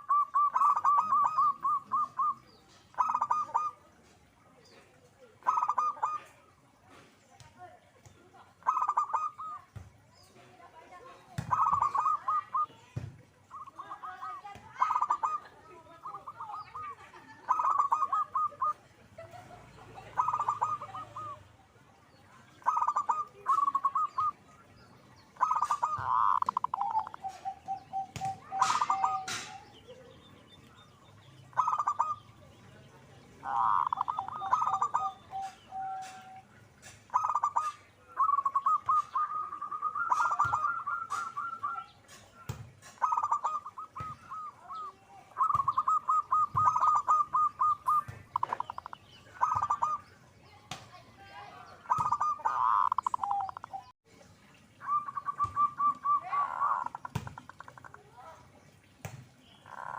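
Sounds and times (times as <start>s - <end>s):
dove cooing: 0.0s - 3.8s, 5.4s - 6.6s, 8.5s - 9.7s, 11.4s - 21.5s, 22.5s - 24.7s, 25.4s - 30.2s, 31.5s - 32.3s, 33.4s - 50.0s, 51.7s - 54.0s, 54.8s - 58.0s, 59.6s - 59.9s.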